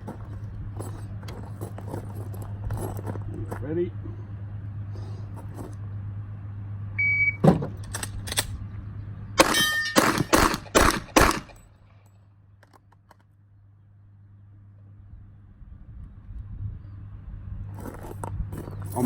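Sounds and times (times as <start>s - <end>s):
shot timer beeps: 7.0s - 7.4s
steel target ringing: 9.4s - 10.5s
gunshots: 9.4s - 11.6s.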